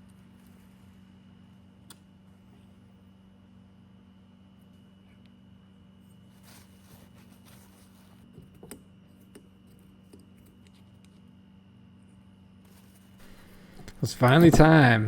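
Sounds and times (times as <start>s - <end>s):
metal parts and tools tapping: 13.2s - 15.0s.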